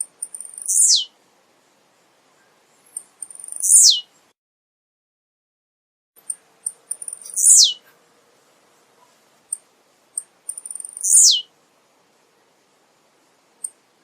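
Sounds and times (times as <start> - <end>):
bird high chips: 0.2 - 1.1, 3.0 - 4.0, 6.2 - 7.9, 10.5 - 11.5.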